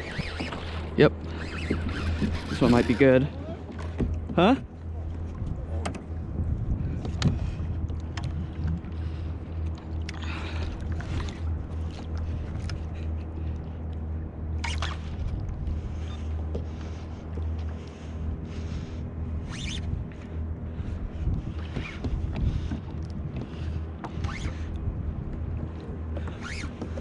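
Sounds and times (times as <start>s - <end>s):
steady low hum: 0.0s - 27.0s
water splashes: 7.4s - 13.8s.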